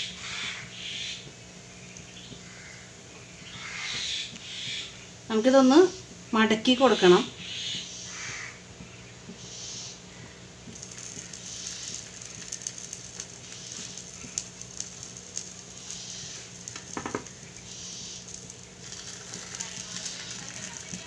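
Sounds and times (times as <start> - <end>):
flatbread sizzling on a hot pan: 7.8 - 21.0
small pops: 10.6 - 21.0.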